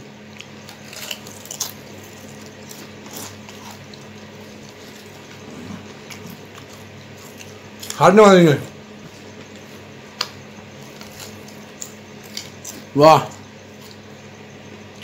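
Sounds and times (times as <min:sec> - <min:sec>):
faint steady hum: 0:00.0 - 0:15.0
potato chips crunching: 0:00.3 - 0:05.3, 0:10.1 - 0:14.0.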